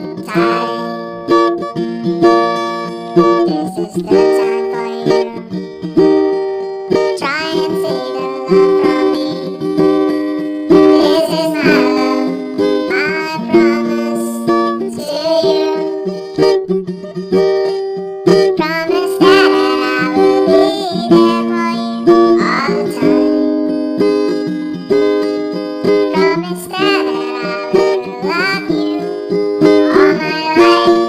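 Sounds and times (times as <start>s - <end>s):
plucked acoustic string chords: 0.0s - 31.0s.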